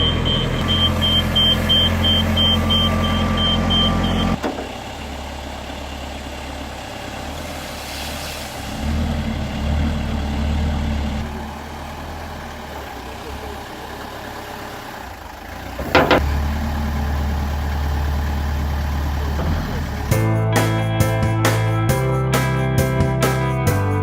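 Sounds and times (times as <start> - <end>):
reversing alarm beeping: 0.0 - 4.4
forklift engine running: 0.0 - 7.6, 8.8 - 20.4.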